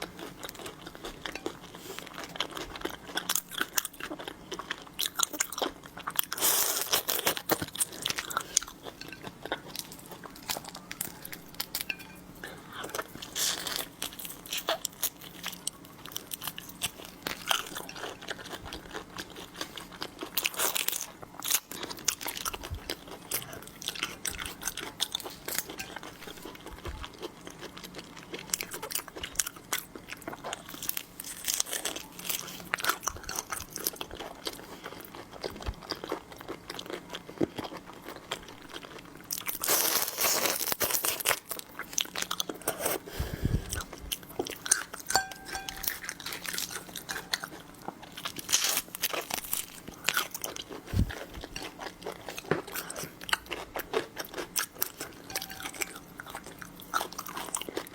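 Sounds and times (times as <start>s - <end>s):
crunching and chewing food: 0.0s - 57.9s.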